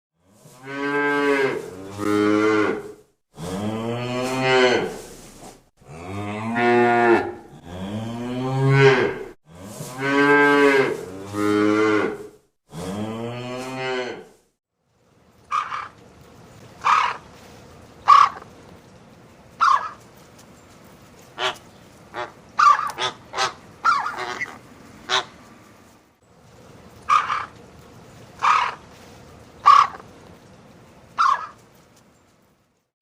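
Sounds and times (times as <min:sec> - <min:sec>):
large farm animal calling: 0:15.5 - 0:16.0, 0:16.8 - 0:17.2, 0:18.0 - 0:18.5, 0:19.6 - 0:20.0, 0:21.4 - 0:25.4, 0:27.0 - 0:27.6, 0:28.4 - 0:28.8, 0:29.6 - 0:30.1, 0:31.2 - 0:31.6.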